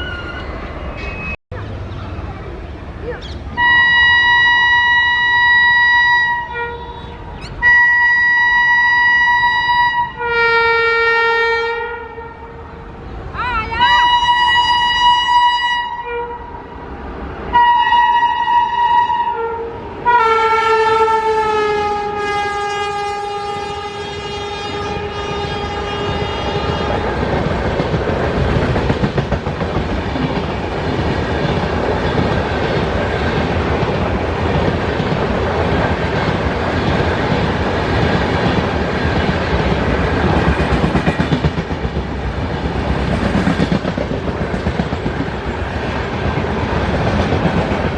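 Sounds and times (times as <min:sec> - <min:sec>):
train rumble: 0:00.0 - 0:47.9
train horn blasts: 0:03.6 - 0:12.9, 0:13.8 - 0:16.7, 0:17.5 - 0:27.2
wheels clattering on rail joints: 0:25.2 - 0:47.9.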